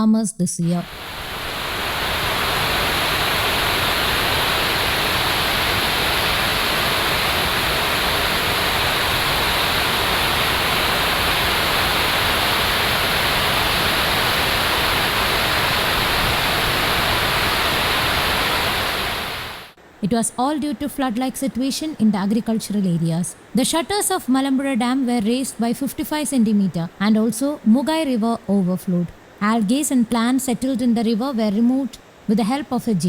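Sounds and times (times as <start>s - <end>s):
water rushing: 0.8s - 20.0s.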